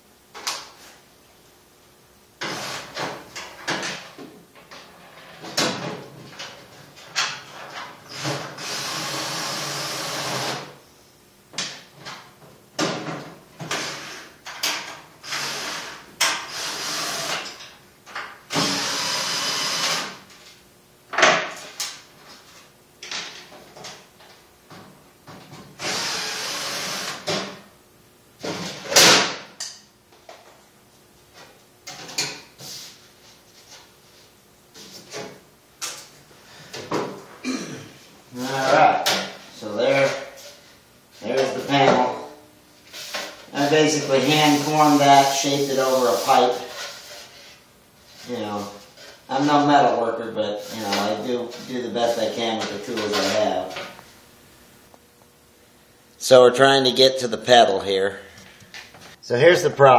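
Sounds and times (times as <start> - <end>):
power tool running: 8.1 - 10.7, 15.2 - 17.5, 18.5 - 20.2, 25.8 - 27.4.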